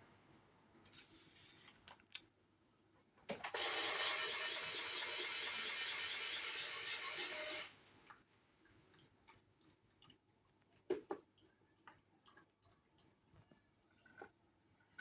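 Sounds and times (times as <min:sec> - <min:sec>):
small electric gear motor running: 0:03.5 - 0:07.7.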